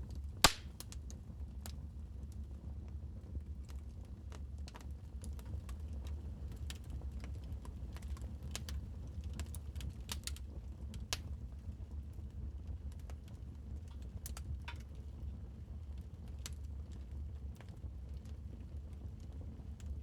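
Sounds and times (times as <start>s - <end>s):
wood fire crackling: 0.1s - 1.8s, 3.6s - 12.2s, 12.8s - 20.0s.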